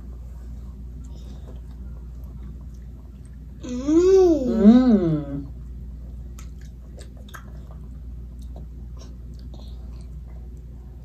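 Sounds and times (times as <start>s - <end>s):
steady low hum: 0.0s - 11.0s
chewing food: 6.0s - 11.0s.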